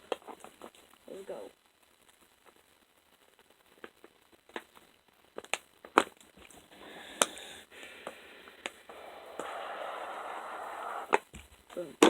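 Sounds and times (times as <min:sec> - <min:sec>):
fidget spinner spinning: 0:06.4 - 0:11.4.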